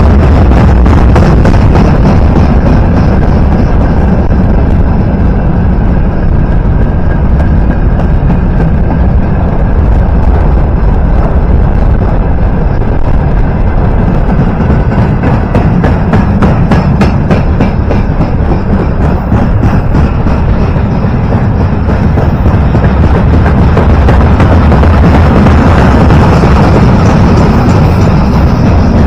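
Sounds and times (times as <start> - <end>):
train wheels rumbling on rails: 0.0 - 29.0
rail-joint clicks: 6.0 - 9.9, 13.8 - 29.0.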